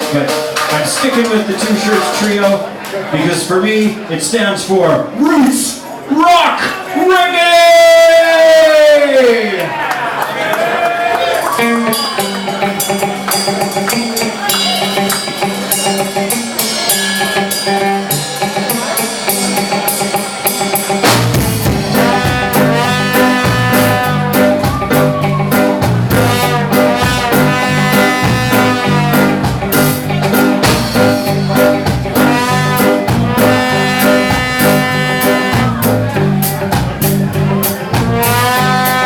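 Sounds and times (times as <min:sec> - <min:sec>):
bass and drums: 0:00.0 - 0:02.8, 0:11.4 - 0:39.0
reggae band playing: 0:00.0 - 0:08.7, 0:09.7 - 0:39.0
lead melody: 0:11.4 - 0:39.0.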